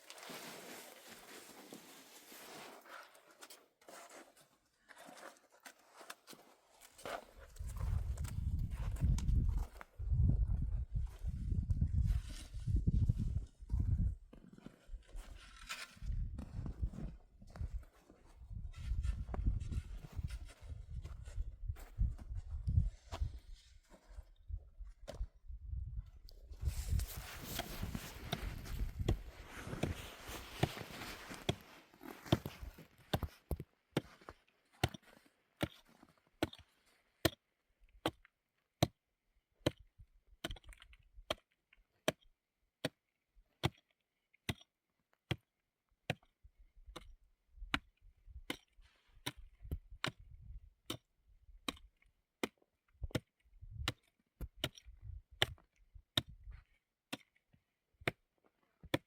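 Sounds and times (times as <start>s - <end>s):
rustling and scraping: 0.0s - 9.8s, 14.5s - 17.2s, 26.6s - 34.4s.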